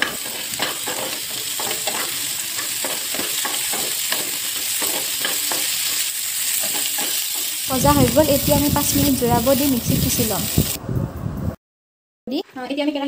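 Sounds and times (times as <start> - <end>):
vegetables sizzling in hot oil: 0.0 - 10.8.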